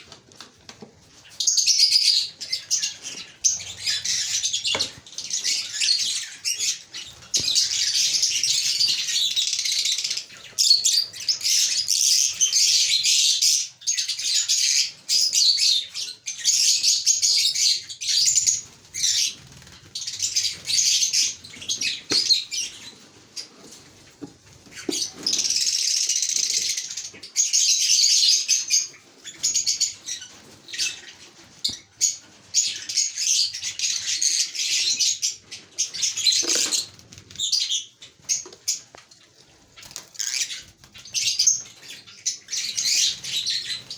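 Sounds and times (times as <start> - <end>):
lovebirds chattering: 15.5 - 38.9.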